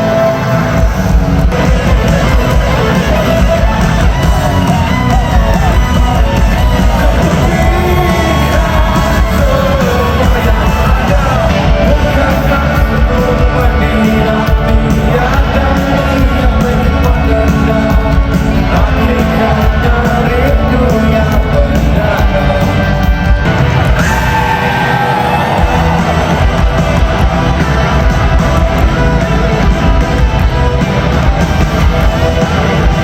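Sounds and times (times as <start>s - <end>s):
crowd shouting and yelling: 0.0s - 33.0s
loud rock band playing: 0.0s - 33.0s
person singing: 1.4s - 27.7s.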